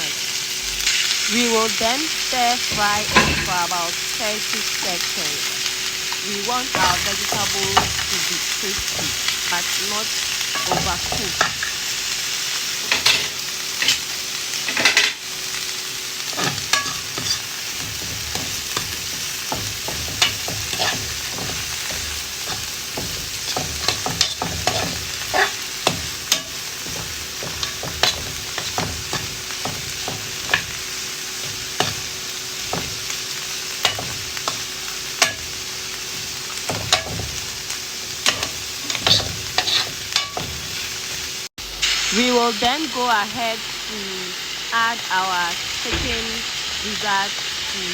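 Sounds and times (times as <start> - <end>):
vegetables sizzling in a pan: 0.0 - 47.9
utensil scraping and knocking pan: 16.3 - 30.8, 33.8 - 41.3.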